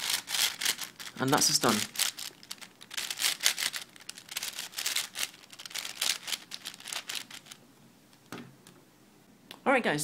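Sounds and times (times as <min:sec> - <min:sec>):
puzzle cube pieces clicking: 0:00.0 - 0:07.6.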